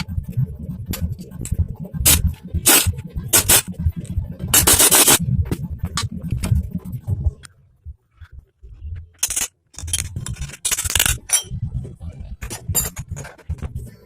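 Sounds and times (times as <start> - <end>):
metal parts clinking and scraping: 9.2 - 11.6.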